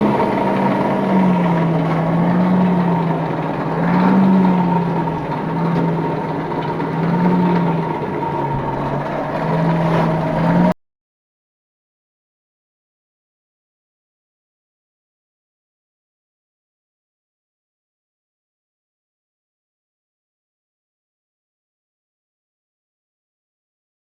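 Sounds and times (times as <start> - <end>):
mechanical drone with wavering hum: 0.0 - 10.7.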